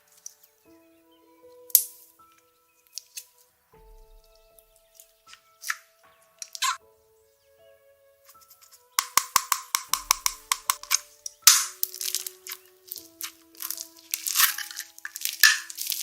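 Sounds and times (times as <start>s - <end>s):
quiet background music: 0.0s - 16.0s
crunching and crackling clicks: 8.3s - 16.0s.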